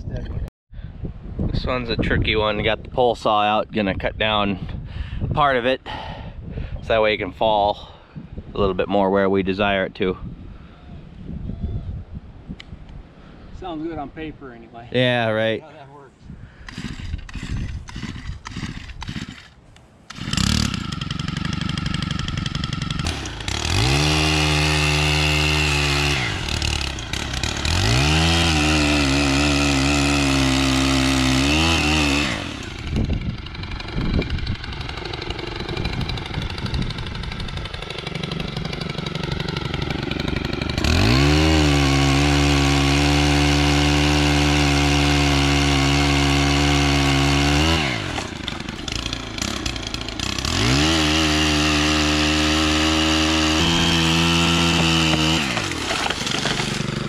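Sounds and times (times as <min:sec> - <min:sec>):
pole saw engine revving: 0:16.6 - 0:57.0.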